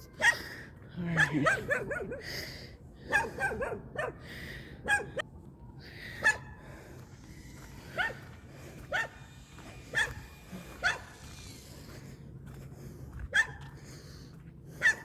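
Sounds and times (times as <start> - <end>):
dog barking: 0.1 - 0.4, 1.2 - 2.2, 3.1 - 4.2, 4.8 - 5.2, 6.2 - 6.5, 8.0 - 8.2, 8.9 - 9.2, 9.9 - 10.2, 10.8 - 11.1, 13.3 - 13.6, 14.8 - 15.0.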